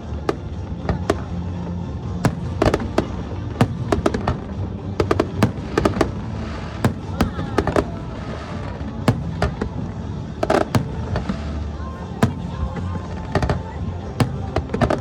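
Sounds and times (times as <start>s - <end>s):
fireworks cracking and banging: 0.1s - 15.0s.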